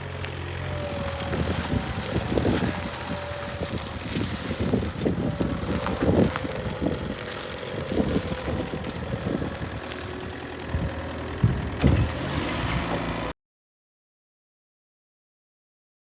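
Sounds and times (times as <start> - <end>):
diesel forklift engine running: 0.0 - 13.3
engine knocks: 0.0 - 13.3.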